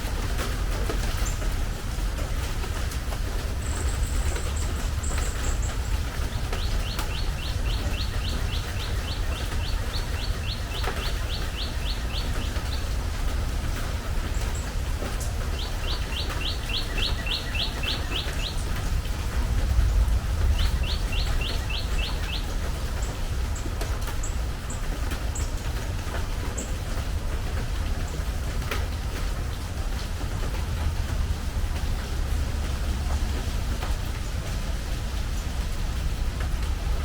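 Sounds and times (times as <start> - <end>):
rain on a metal roof: 0.0 - 37.0
bird singing: 3.8 - 13.1, 15.5 - 18.6, 20.5 - 23.2.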